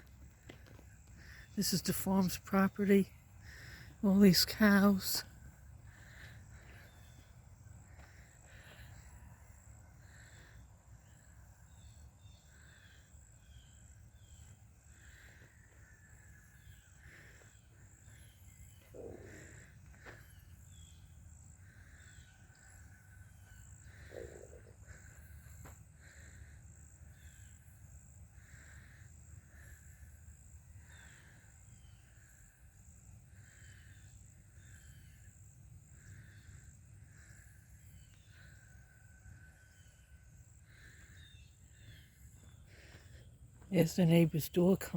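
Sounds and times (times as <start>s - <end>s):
small birds chirping: 0.0s - 32.5s.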